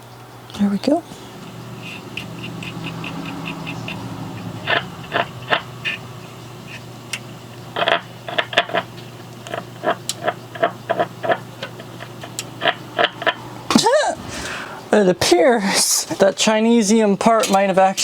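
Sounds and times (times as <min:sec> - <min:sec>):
low hum: 0:00.0 - 0:15.0
tools clicking and tapping: 0:01.4 - 0:06.0.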